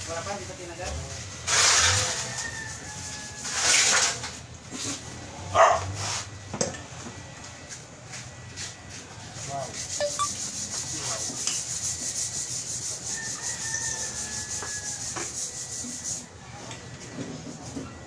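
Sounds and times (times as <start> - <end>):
fast back-and-forth scraping: 9.6 - 13.0.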